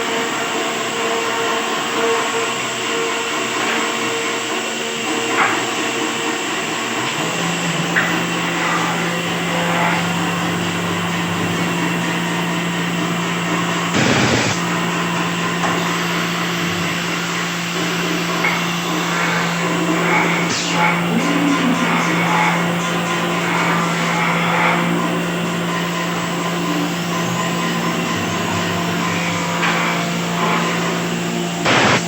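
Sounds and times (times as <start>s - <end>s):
woodworking power tool running: 0.0s - 32.0s.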